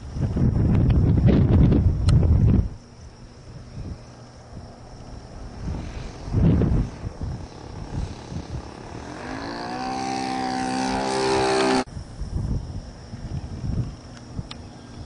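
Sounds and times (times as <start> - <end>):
wind buffeting microphone: 0.0 - 15.0
model airplane engine running: 4.1 - 11.9.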